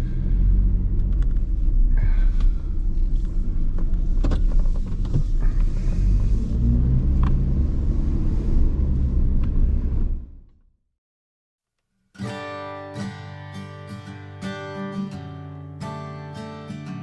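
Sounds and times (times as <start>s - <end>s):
truck engine and road rumble: 0.0s - 10.5s.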